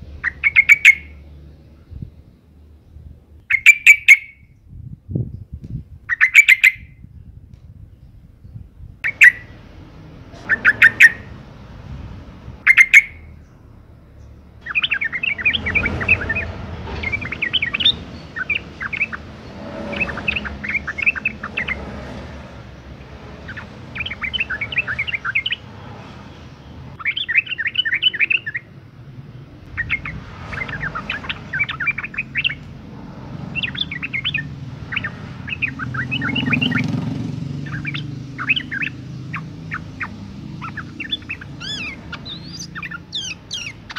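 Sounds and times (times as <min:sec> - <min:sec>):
bird calling: 0:00.0 - 0:01.2, 0:03.5 - 0:04.5, 0:06.1 - 0:06.9, 0:09.0 - 0:09.6, 0:10.3 - 0:11.5, 0:12.6 - 0:13.4, 0:14.6 - 0:28.8, 0:29.7 - 0:43.9
bird chattering: 0:00.2 - 0:01.2, 0:03.5 - 0:04.4, 0:06.1 - 0:06.9, 0:09.0 - 0:09.6, 0:10.4 - 0:11.4, 0:12.6 - 0:13.3, 0:14.6 - 0:26.1, 0:26.7 - 0:28.7, 0:29.7 - 0:43.9.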